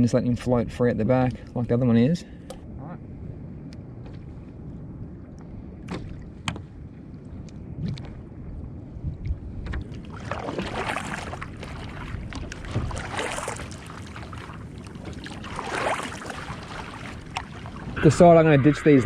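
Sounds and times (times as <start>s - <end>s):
wind rumble on microphone: 0.0s - 19.0s
paddle splashing through water: 9.6s - 18.0s.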